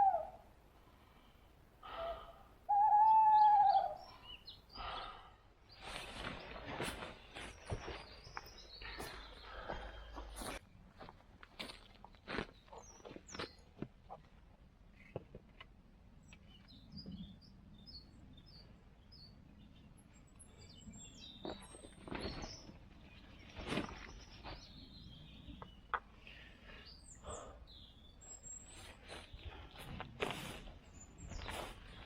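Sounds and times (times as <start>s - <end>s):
songbirds chirping: 0.0s - 32.0s
rustling footsteps on ground: 5.7s - 14.3s, 21.4s - 24.8s, 28.6s - 32.0s.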